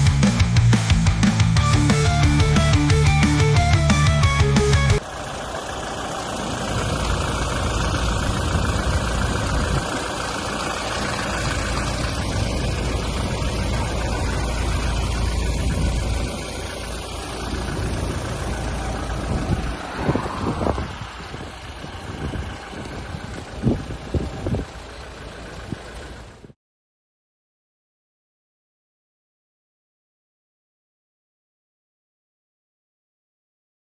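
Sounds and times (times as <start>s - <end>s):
diesel engine running: 0.0s - 26.6s.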